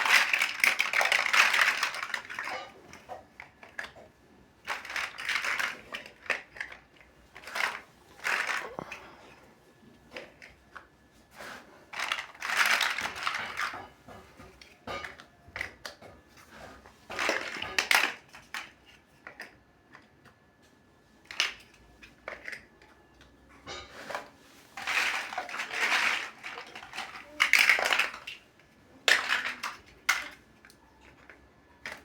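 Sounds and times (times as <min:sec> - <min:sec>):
plastic bricks clicking: 0:00.0 - 0:04.0, 0:04.6 - 0:09.0, 0:11.9 - 0:13.8, 0:24.8 - 0:32.0
plastic bricks rattling: 0:00.0 - 0:09.1, 0:11.5 - 0:20.3, 0:21.2 - 0:22.9, 0:23.9 - 0:32.0.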